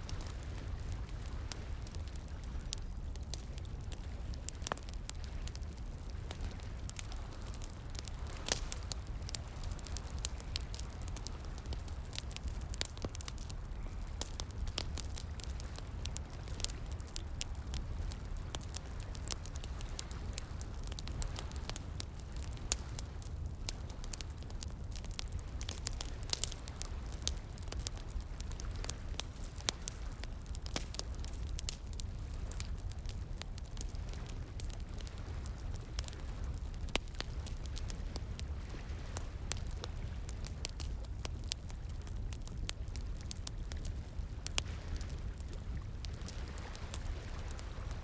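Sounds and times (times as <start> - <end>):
campfire crackling and popping: 0.0 - 48.0.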